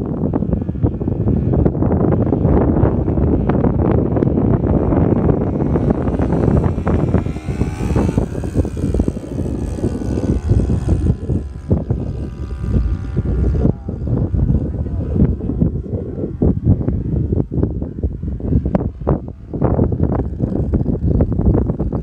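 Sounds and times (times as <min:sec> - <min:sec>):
propeller plane engine drone: 0:00.0 - 0:22.0.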